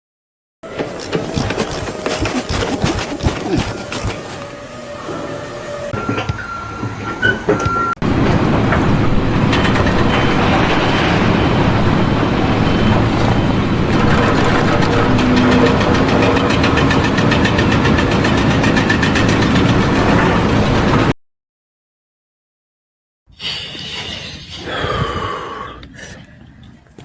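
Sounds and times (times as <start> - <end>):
heavy machinery running: 0.7 - 21.1.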